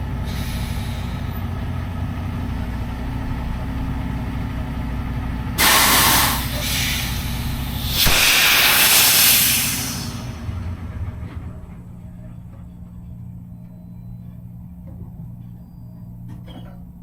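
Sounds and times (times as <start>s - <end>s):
diesel engine idling: 0.0s - 14.8s
air brake hisses: 0.3s - 1.3s, 5.6s - 10.6s.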